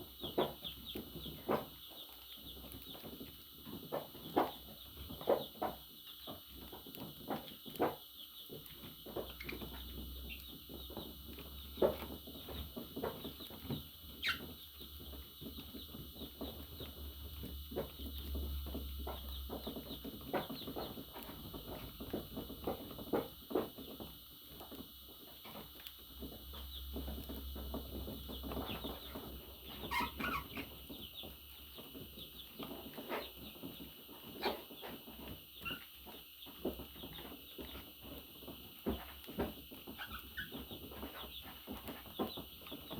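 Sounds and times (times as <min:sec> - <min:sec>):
bird calls: 0:00.0 - 0:23.6, 0:26.5 - 0:42.9
birds chirping: 0:00.0 - 0:42.9
budgerigars chattering: 0:28.4 - 0:30.8.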